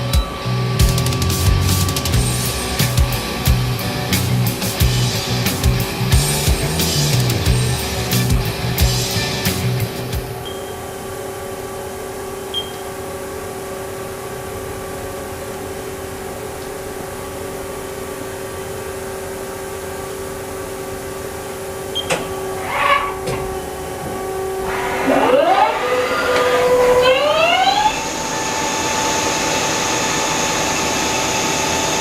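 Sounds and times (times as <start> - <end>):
machine hum with held tone: 0.0 - 32.0
lathe spindle whine: 22.4 - 32.0.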